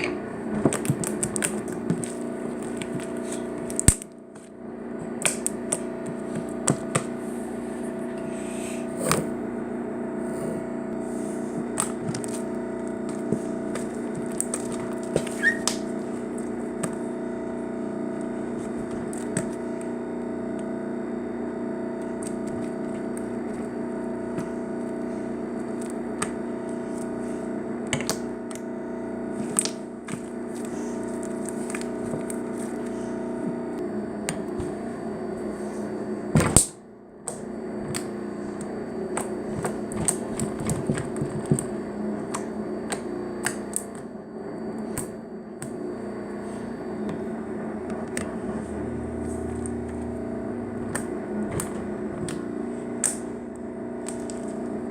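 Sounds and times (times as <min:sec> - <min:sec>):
steady background drone: 0:42.6 - 0:54.9.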